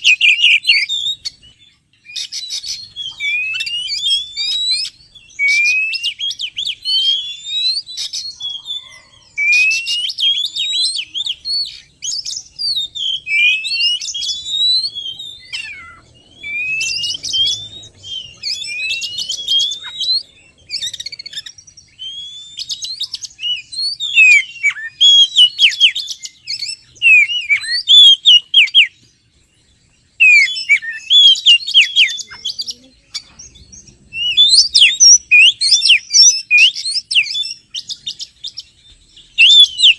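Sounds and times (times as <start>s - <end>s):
bird singing whistled phrases: 0.0s - 29.0s, 30.2s - 39.9s.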